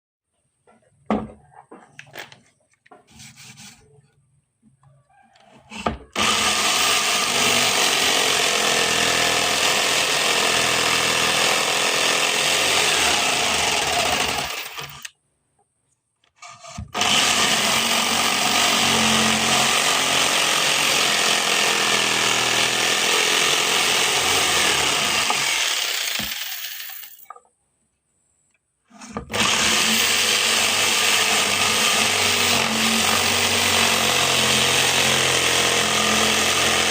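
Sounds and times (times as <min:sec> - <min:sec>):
power tool cutting wood: 0:05.7 - 0:15.1, 0:16.4 - 0:27.2, 0:28.9 - 0:36.9.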